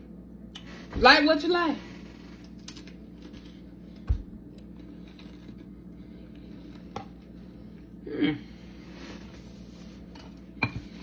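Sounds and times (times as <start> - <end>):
cracker crunching while chewed: 2.4 - 7.3.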